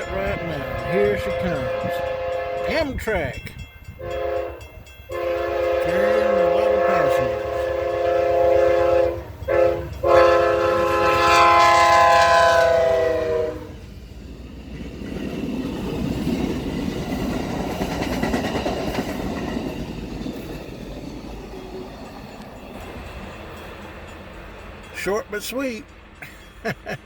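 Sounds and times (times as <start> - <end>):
locomotive air horn chord: 0.0 - 3.0, 4.0 - 13.8.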